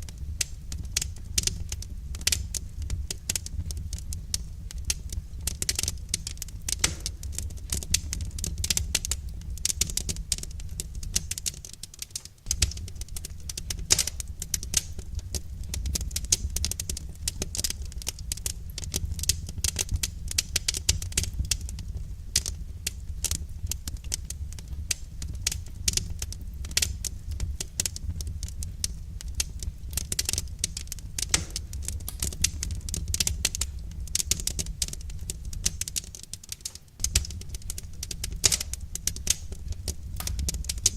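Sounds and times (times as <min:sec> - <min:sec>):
wood fire crackling: 0:00.0 - 0:40.9
low steady rumble: 0:12.4 - 0:36.0, 0:36.9 - 0:40.9.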